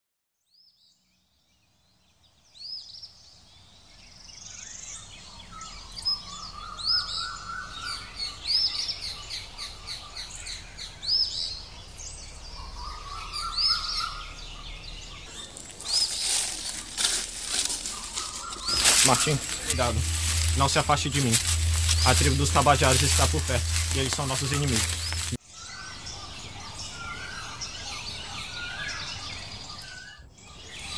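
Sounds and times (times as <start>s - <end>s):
high arching bird chirp: 4.3s - 30.9s
quick warbled bird notes: 15.4s - 25.4s.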